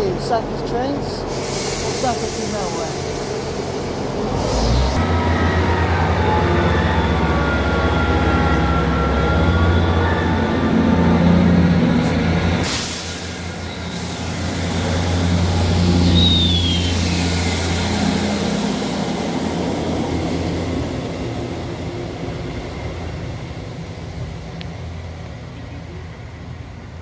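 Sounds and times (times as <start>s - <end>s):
train diesel engines running: 0.0s - 27.0s
short falling squeal: 15.8s - 18.7s.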